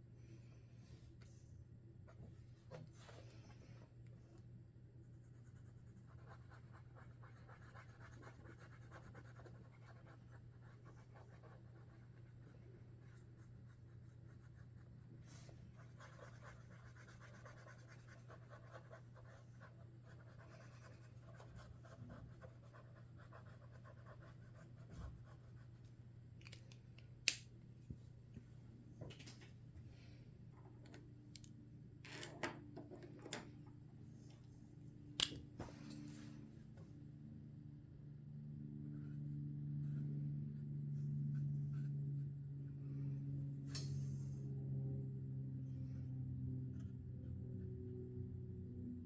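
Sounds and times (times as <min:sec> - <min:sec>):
marker scratching on paper: 0:13.1 - 0:25.6
low hum: 0:33.2 - 0:49.0.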